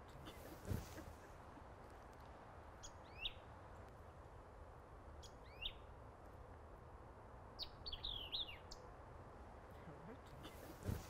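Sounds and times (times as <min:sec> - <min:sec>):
steady background noise: 0:00.0 - 0:11.0
small birds chirping: 0:02.8 - 0:03.9, 0:05.1 - 0:05.9, 0:07.5 - 0:08.9.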